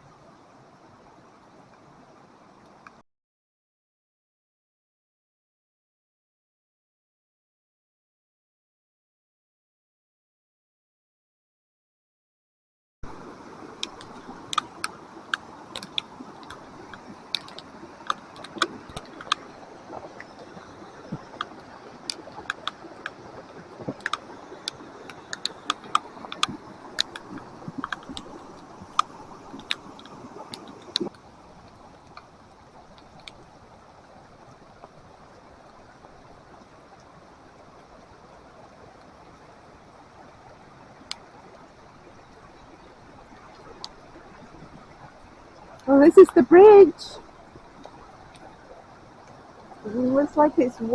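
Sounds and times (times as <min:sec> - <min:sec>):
flooded creek rushing: 0:13.0 - 0:50.9
sharp clicks: 0:22.1 - 0:23.2.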